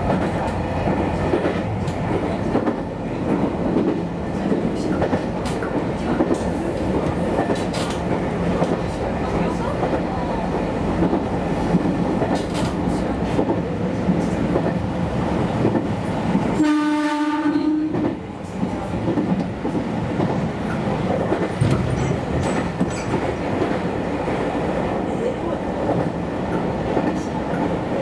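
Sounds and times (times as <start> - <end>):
train wheels rattling over track: 0.0 - 28.0
train horn: 16.6 - 18.1.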